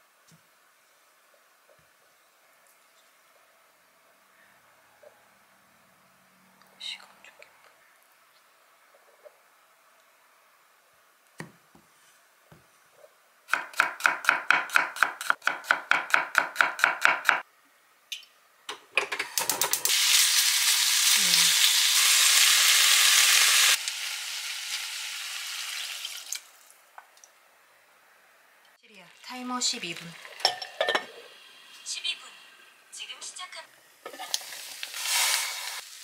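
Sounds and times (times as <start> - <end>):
loud sizzling in a pot: 19.3 - 26.7, 29.1 - 32.9, 33.9 - 36.0.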